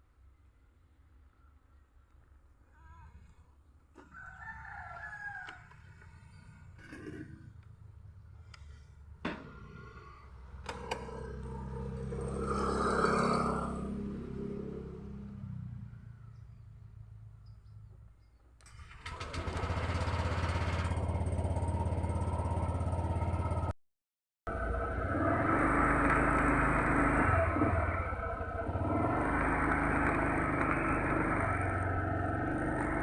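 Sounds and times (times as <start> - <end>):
vehicle engine humming: 24.5 - 33.0.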